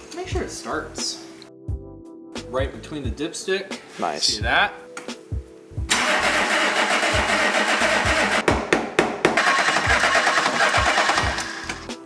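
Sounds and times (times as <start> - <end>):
starter cranking engine: 5.9 - 8.4, 9.4 - 11.8.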